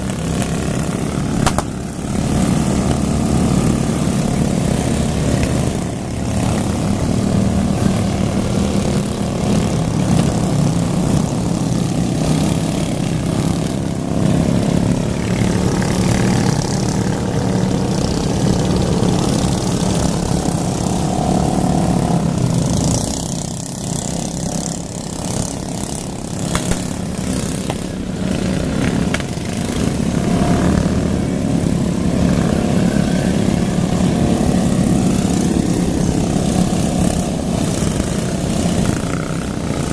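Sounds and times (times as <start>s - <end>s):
lawn mower engines droning: 0.0s - 39.9s.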